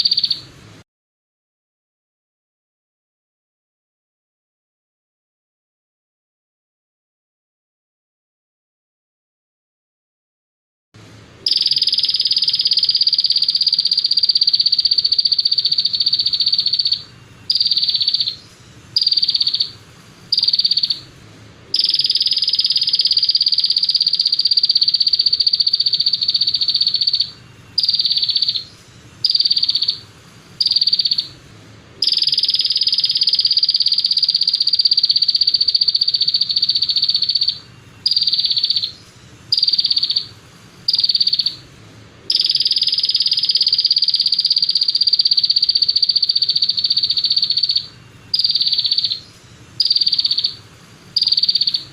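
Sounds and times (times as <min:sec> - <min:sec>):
songbird trilling song: 0:00.0 - 0:00.5, 0:11.5 - 0:21.1, 0:21.8 - 0:30.0, 0:30.6 - 0:31.4, 0:32.0 - 0:40.3, 0:40.9 - 0:41.6, 0:42.3 - 0:51.9.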